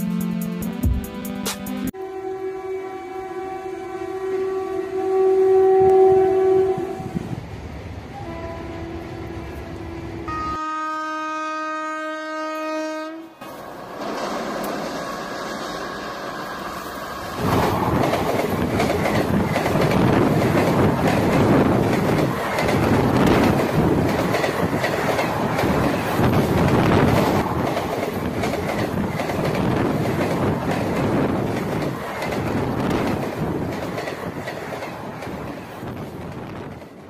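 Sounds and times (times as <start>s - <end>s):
train wheels rumbling on rail: 13.4s - 37.0s.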